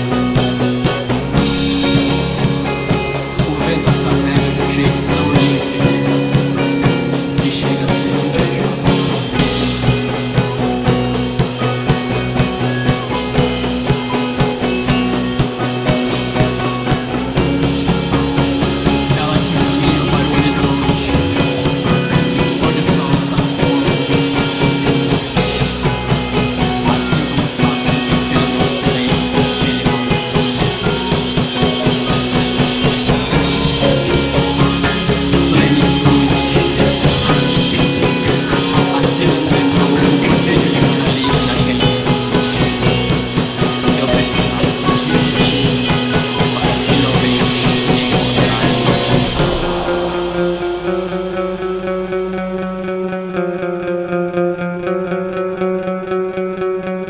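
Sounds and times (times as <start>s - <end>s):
drum kit playing busy beat: 0.0s - 52.3s
post-rock band music: 0.0s - 57.0s.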